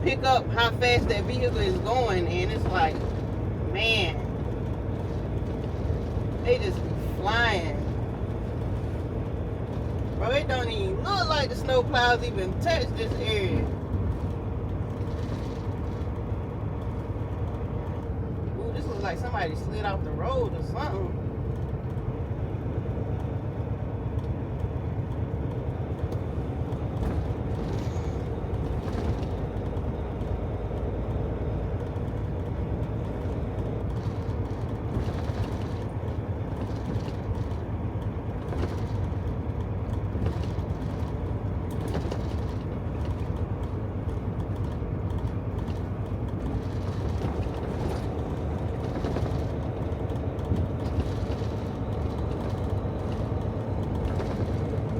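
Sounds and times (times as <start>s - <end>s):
truck engine and road drone: 0.0s - 54.9s.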